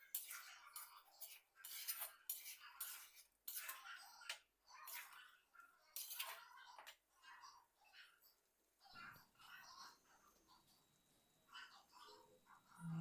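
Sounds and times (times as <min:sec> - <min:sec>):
spoon scraping a cooking pan: 0:00.0 - 0:08.3.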